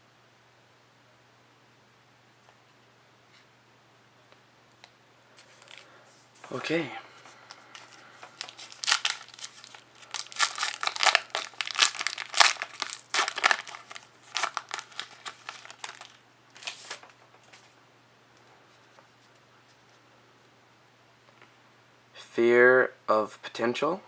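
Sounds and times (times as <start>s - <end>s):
card pack wrapper tearing and crinkling: 5.4s - 5.9s, 7.5s - 17.0s.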